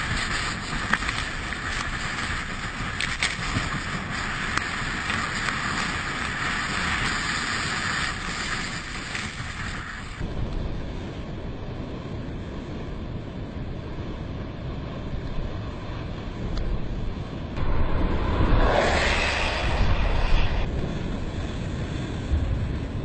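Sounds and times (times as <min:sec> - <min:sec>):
rushing water hiss: 0:00.0 - 0:10.2
wind on microphone: 0:00.0 - 0:23.0.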